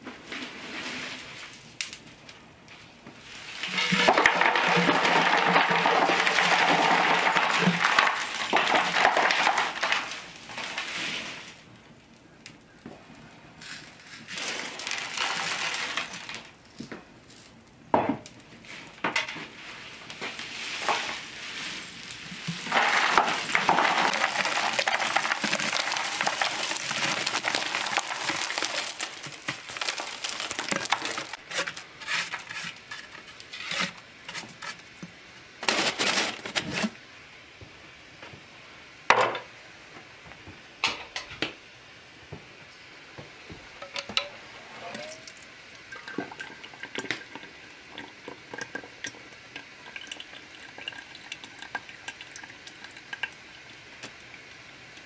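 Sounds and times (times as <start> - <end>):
utensils clinking and scraping: 3.6 - 6.8, 22.6 - 34.8.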